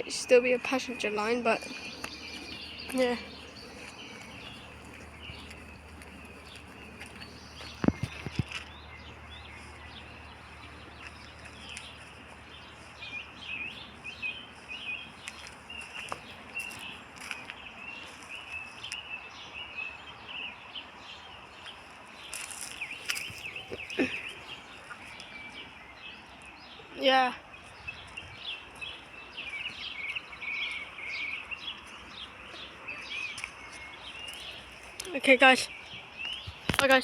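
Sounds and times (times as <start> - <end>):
outdoor background noise: 0.0 - 37.0
small birds chirping: 0.0 - 37.0.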